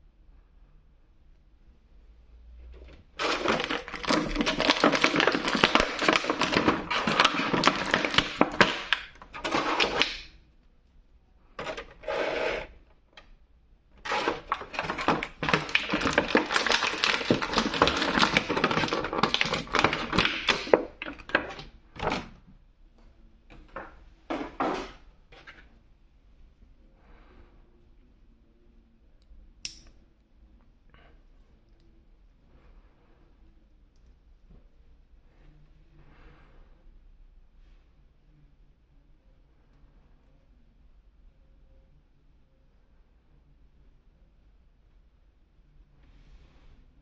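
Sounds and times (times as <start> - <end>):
plastic packaging crinkling: 3.2 - 10.3, 14.0 - 22.4.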